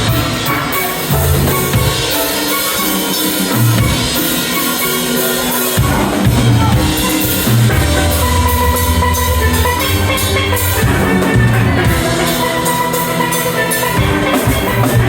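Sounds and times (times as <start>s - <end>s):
drum kit: 0.0s - 15.0s
ringing steel pan notes: 0.0s - 15.0s
deep bass notes: 6.2s - 15.0s.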